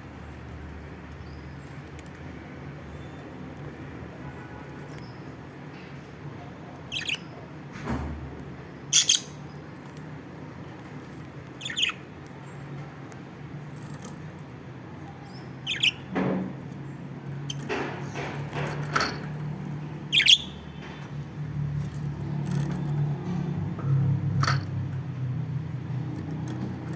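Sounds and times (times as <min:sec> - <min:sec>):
lovebirds chirping: 0:06.8 - 0:07.5, 0:08.8 - 0:09.8, 0:11.5 - 0:12.7, 0:15.1 - 0:16.2, 0:17.3 - 0:18.4, 0:19.7 - 0:21.2.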